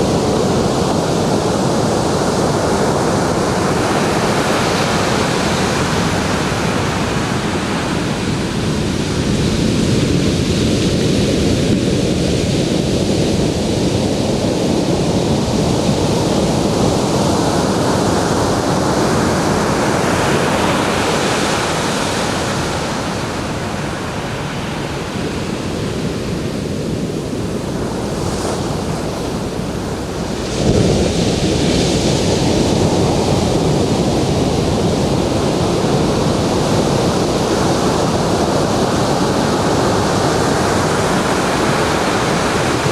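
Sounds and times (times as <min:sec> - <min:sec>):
ocean surf washing onto beach: 0:00.0 - 0:42.9
wave breaking: 0:16.5 - 0:34.6.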